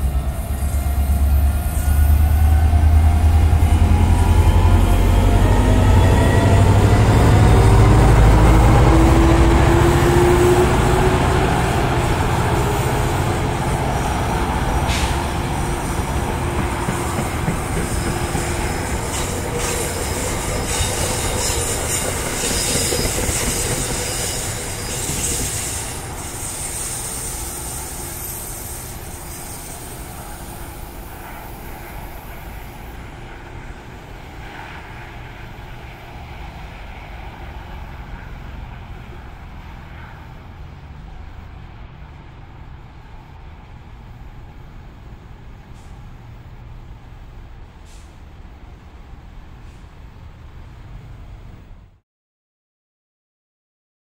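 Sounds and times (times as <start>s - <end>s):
train rumbling past: 0.0s - 52.0s
high wheel squeal: 16.8s - 31.6s.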